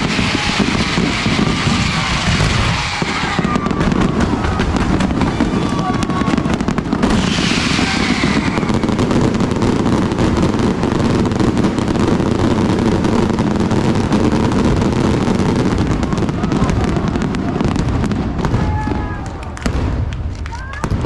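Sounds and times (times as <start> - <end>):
falling firework whistle: 0.0 - 11.7
fireworks barrage of bangs: 0.0 - 21.0.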